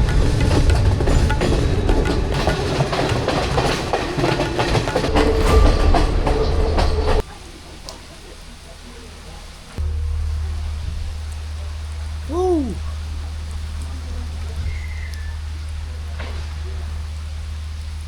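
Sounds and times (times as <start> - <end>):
train wheels clattering over track: 0.0 - 7.4.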